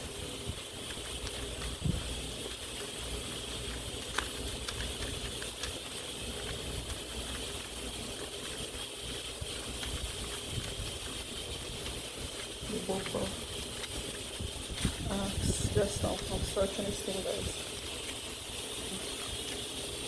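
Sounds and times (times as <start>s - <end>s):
pages being leafed through: 0.0s - 15.0s.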